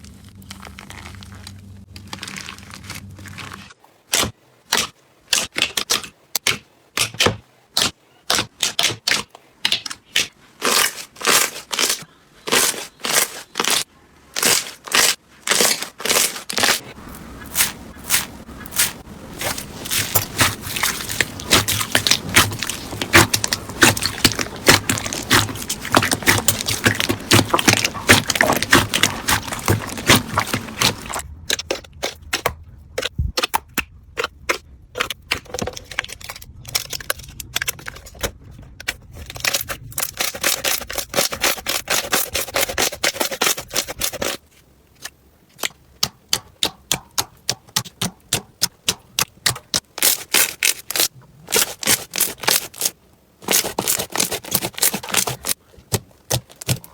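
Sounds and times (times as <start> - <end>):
slime squished by hand: 14.4 - 38.2.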